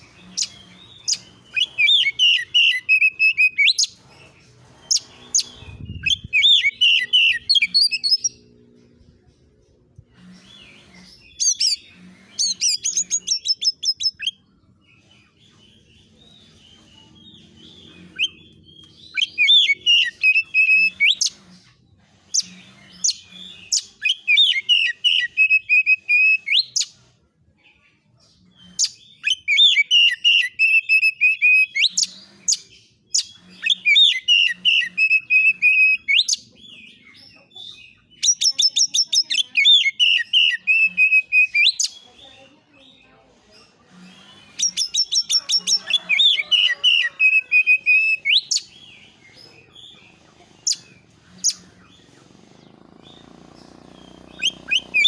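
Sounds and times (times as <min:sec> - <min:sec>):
bird singing rapid repeated notes: 0:10.4 - 0:14.6, 0:38.0 - 0:42.1, 0:44.4 - 0:45.4, 0:47.6 - 0:55.0.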